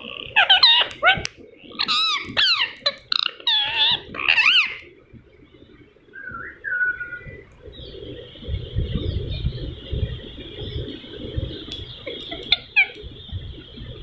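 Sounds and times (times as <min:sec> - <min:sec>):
parrot squawking: 0:00.3 - 0:04.8, 0:12.1 - 0:13.0.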